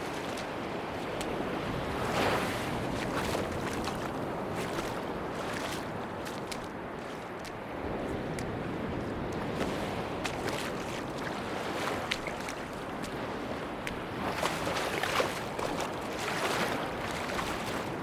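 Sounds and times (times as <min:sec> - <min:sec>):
sea waves washing on beach: 0:00.0 - 0:18.0.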